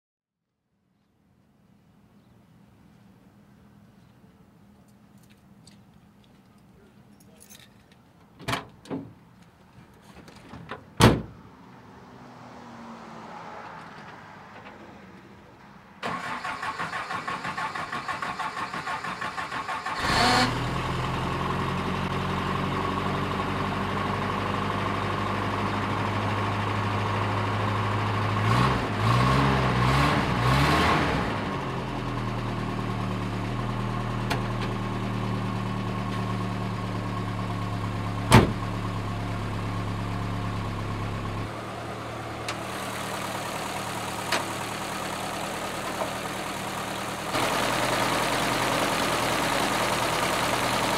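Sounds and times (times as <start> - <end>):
car engine cranking and idling: 16.0 - 50.9
engine revving: 16.1 - 22.8, 28.1 - 31.9, 46.5 - 50.9.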